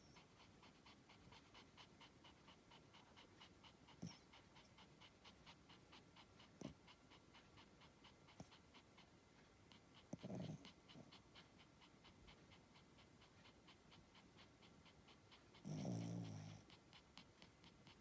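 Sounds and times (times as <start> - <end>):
dog snorting: 10.0 - 11.2, 14.4 - 18.0
dog snoring: 10.1 - 11.1, 15.6 - 16.7.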